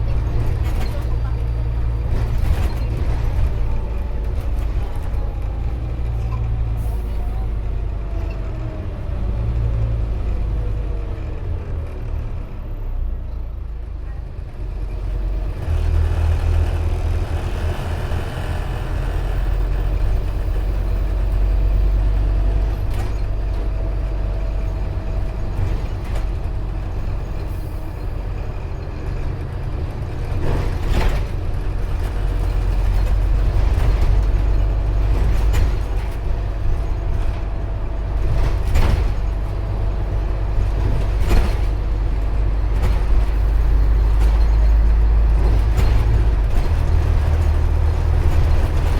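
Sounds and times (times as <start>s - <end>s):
bus body knocks and rattles: 0.0s - 6.7s, 19.5s - 48.9s
bus engine drone: 0.0s - 48.9s.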